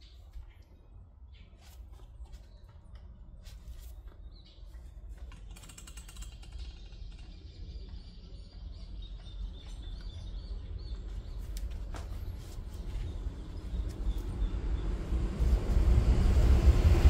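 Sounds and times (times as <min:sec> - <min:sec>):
low rumble: 0:12.9 - 0:17.0.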